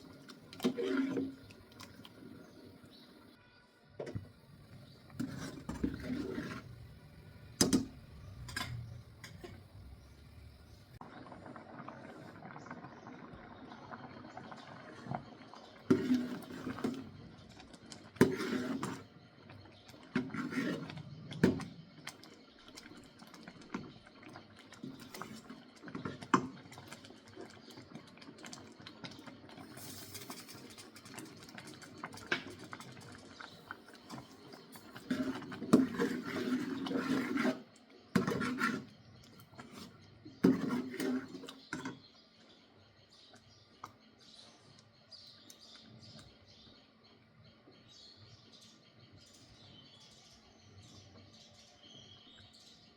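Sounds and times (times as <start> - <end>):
utensils clattering and scraping: 8.3 - 9.7.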